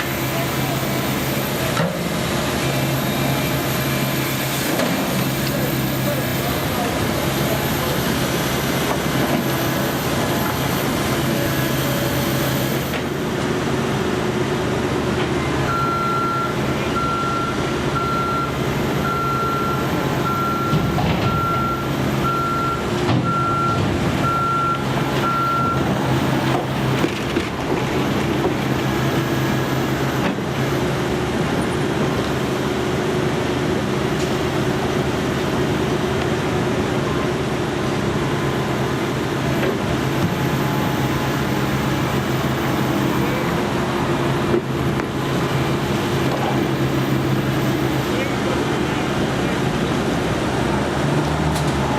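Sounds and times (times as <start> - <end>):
construction vehicle engine running: 0.0 - 51.9
reversing alarm beeping: 15.4 - 26.6, 28.0 - 30.4.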